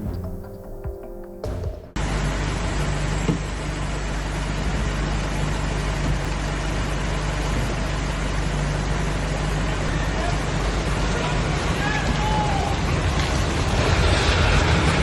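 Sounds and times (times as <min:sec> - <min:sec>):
vehicle engine running: 0:01.5 - 0:15.0.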